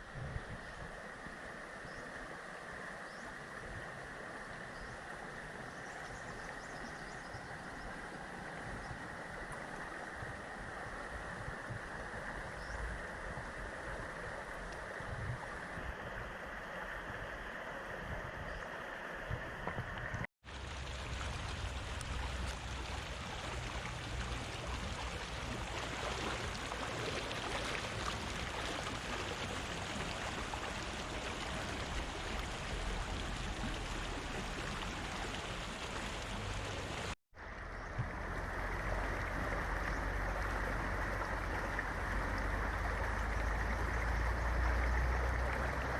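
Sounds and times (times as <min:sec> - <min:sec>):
river rushing: 0:20.5 - 0:45.9.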